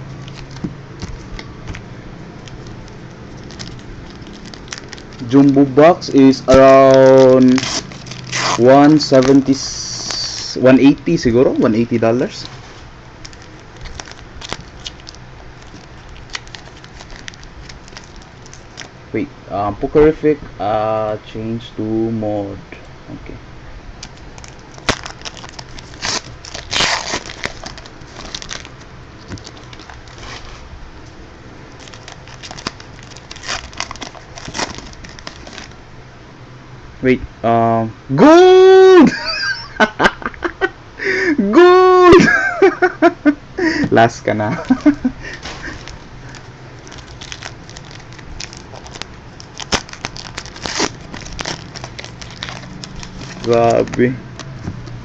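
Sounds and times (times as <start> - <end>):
wrappers tearing and crinkling: 0.0 - 10.6, 13.2 - 19.0, 24.0 - 30.6, 31.7 - 35.8, 44.6 - 55.0
cards being handled: 0.1 - 5.7, 6.3 - 10.6, 44.6 - 55.0.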